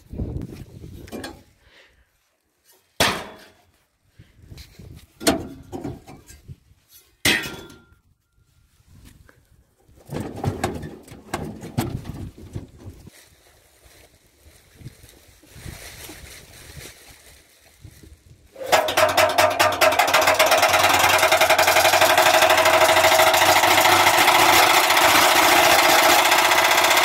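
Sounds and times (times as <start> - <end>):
rattling and clattering: 10.0 - 13.1, 18.6 - 27.0.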